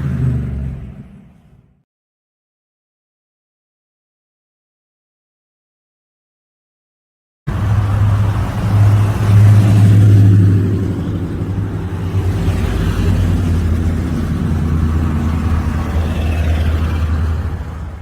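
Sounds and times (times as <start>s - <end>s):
car engine low rumble: 7.5s - 18.0s.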